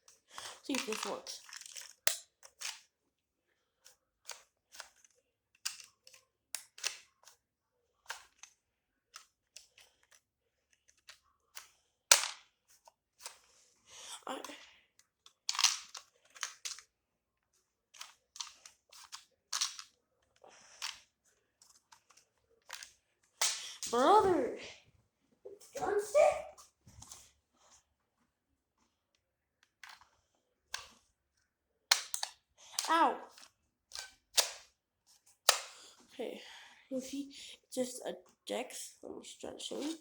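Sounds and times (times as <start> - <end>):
toy pistol plastic clicks and snaps: 0.4 - 2.9, 5.6 - 7.4, 11.0 - 12.5, 15.4 - 16.9, 18.0 - 19.9, 22.1 - 23.9, 31.9 - 34.7, 35.4 - 35.8.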